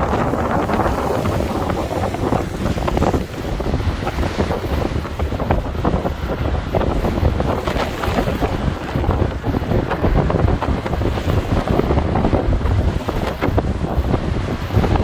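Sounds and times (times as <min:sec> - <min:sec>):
waves breaking on shore: 0:00.0 - 0:15.0
wind buffeting microphone: 0:00.0 - 0:15.0.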